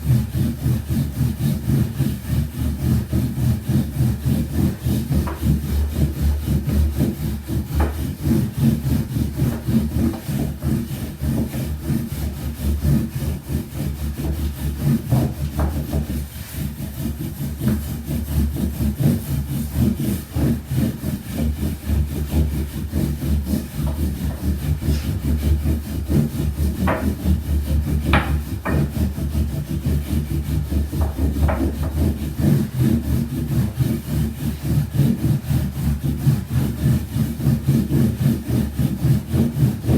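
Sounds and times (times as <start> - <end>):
rolling pin rolling dough on board: 0.0 - 39.9
wood knocking on wood: 4.5 - 10.8, 13.8 - 16.2, 23.4 - 30.0, 30.6 - 32.2.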